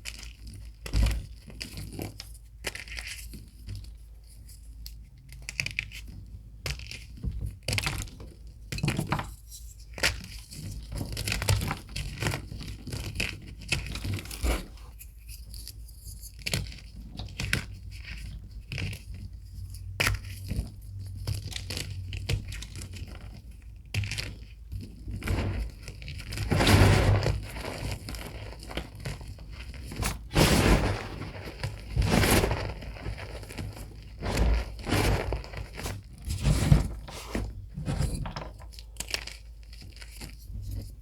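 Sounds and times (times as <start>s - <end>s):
chalk crunching and crackling: 25.3s - 37.4s.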